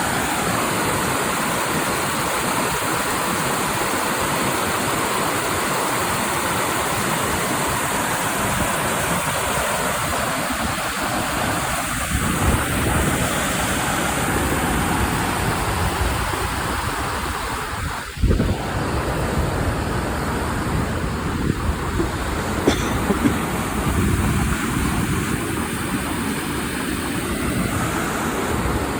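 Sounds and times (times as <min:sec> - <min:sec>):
creek water rushing: 0:00.0 - 0:28.9.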